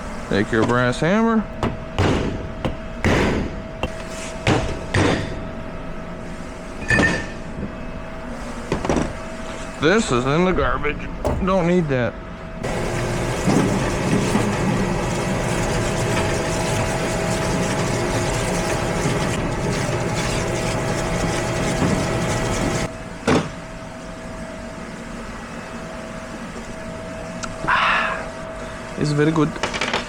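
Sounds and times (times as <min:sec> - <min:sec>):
machine running loudly: 0:12.6 - 0:22.9.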